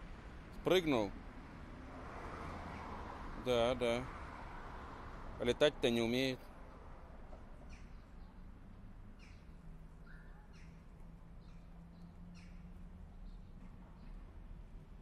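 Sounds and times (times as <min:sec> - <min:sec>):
small songbirds chirping: 0:07.6 - 0:15.0.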